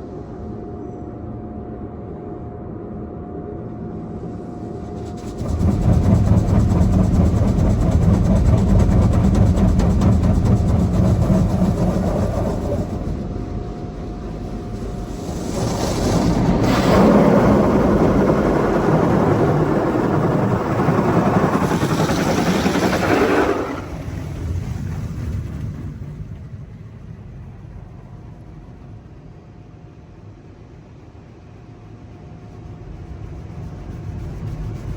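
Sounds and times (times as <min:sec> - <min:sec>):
car wash water jets hissing: 0:04.9 - 0:24.9.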